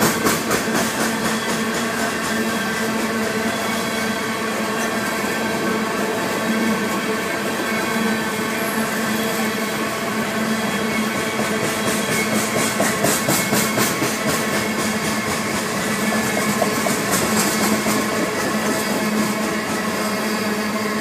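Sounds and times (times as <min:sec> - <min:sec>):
steel wheels rumbling on track: 0:00.0 - 0:21.0
rapid clicking from wheels: 0:11.2 - 0:19.8.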